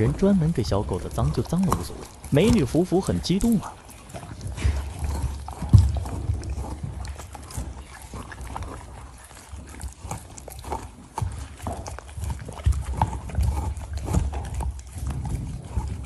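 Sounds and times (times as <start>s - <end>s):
dogs gnawing and licking: 0.0s - 16.0s.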